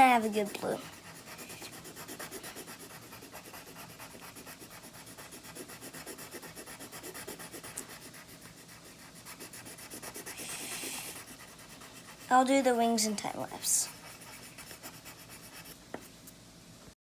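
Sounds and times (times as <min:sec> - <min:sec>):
pencil scratching on paper: 0:00.0 - 0:16.1.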